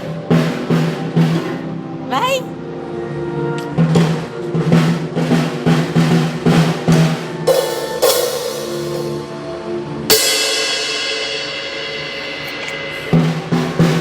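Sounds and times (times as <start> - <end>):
drum strokes: 0.0 - 1.8, 3.6 - 9.4, 10.1 - 14.0
cymbal crashes: 5.7 - 9.4, 10.1 - 14.0.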